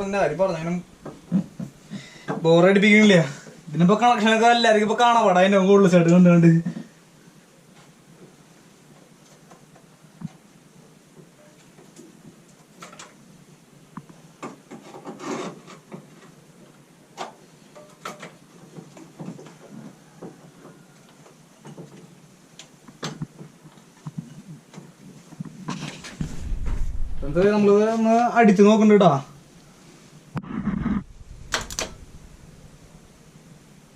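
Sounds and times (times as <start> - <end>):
rubbing and scraping: 25.9 - 27.8, 30.4 - 33.4.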